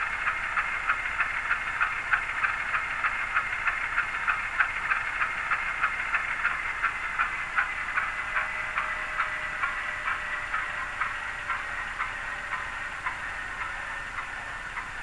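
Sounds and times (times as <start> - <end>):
thin hissing diesel engine sound: 0.0 - 15.0.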